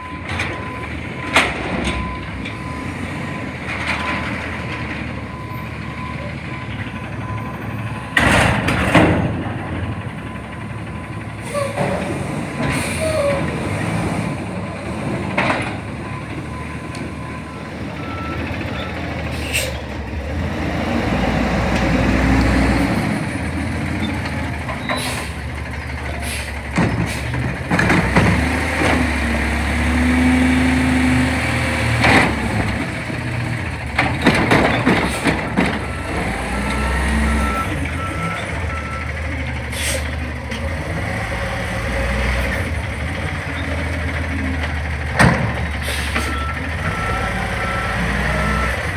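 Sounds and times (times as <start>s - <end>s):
garbage truck engine revving: 0.9s - 48.9s
air brake hisses: 19.3s - 19.8s, 24.9s - 25.4s, 26.2s - 27.4s, 39.7s - 40.2s, 45.8s - 46.3s.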